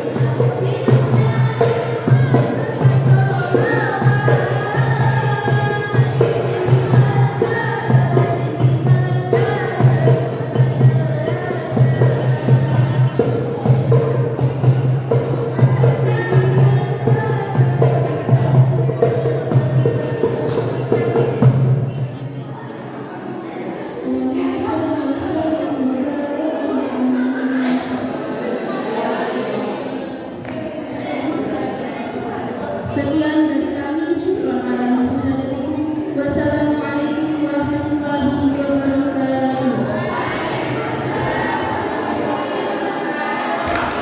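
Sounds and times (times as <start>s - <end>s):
devotional singing: 0.0s - 21.6s, 38.2s - 44.0s
hand percussion beat: 0.0s - 22.4s, 43.6s - 44.0s.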